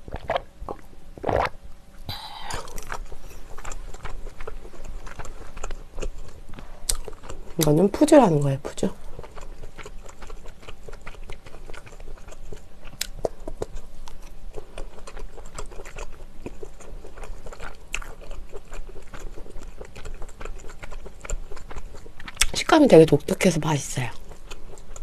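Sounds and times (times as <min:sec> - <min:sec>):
small mouth clicks: 0:02.1 - 0:04.1
close chewing: 0:02.3 - 0:25.0.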